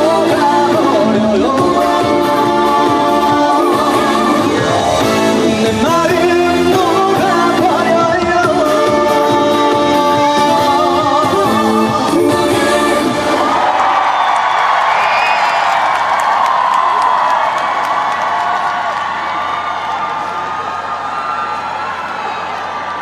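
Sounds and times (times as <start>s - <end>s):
amplified backing track: 0.0s - 13.5s
person singing with vibrato: 0.0s - 13.8s.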